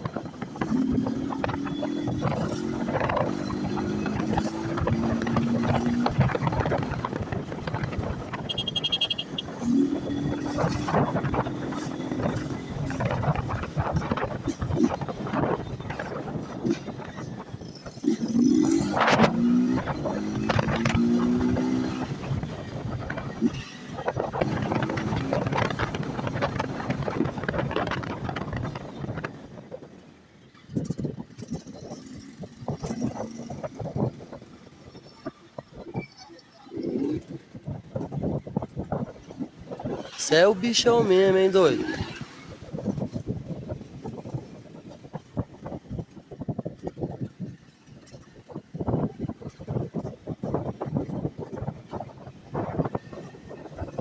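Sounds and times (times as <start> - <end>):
motorcycle engine running: 0.0 - 21.0
wind buffeting microphone: 0.0 - 30.1, 30.7 - 40.2, 42.0 - 54.0.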